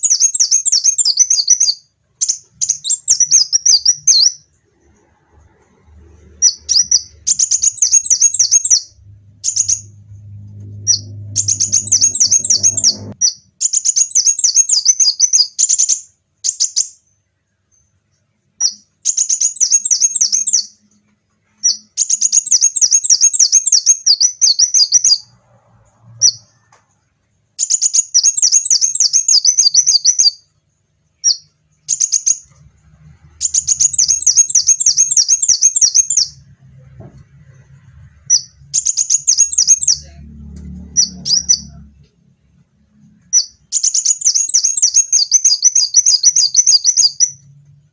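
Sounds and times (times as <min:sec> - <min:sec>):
low rumble: 0:04.6 - 0:13.2, 0:36.3 - 0:38.9, 0:39.7 - 0:43.4
sunbird singing sharp chirps: 0:06.4 - 0:10.2, 0:10.8 - 0:17.0, 0:33.3 - 0:36.4, 0:38.3 - 0:40.1, 0:43.4 - 0:47.4.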